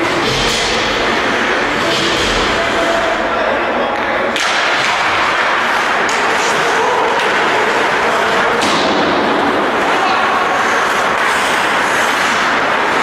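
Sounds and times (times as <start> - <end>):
hockey sticks and puck clacking: 0.0 - 13.0
skates rushing on ice: 3.9 - 13.0.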